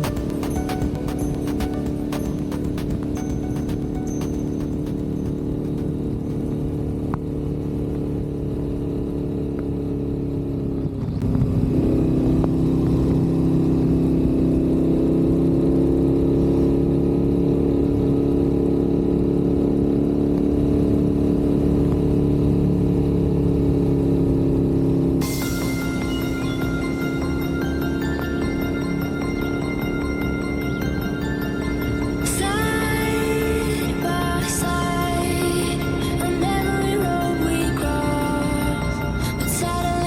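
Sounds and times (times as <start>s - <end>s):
high steady tones: 0.0s - 7.1s, 25.2s - 40.0s
motorcycle engine cruising: 0.0s - 40.0s.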